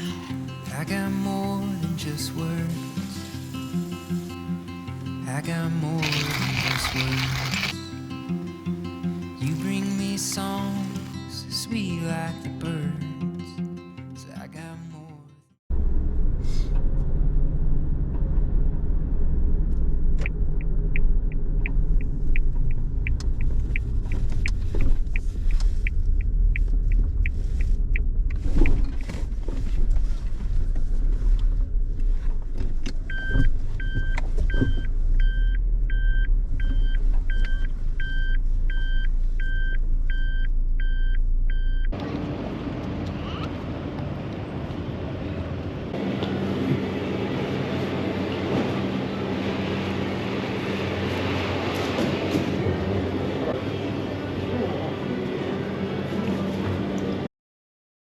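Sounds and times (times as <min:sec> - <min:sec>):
road and engine rumble: 0:00.0 - 0:14.7, 0:15.7 - 0:57.3
turn signal ticking: 0:20.2 - 0:29.1, 0:32.8 - 0:42.0.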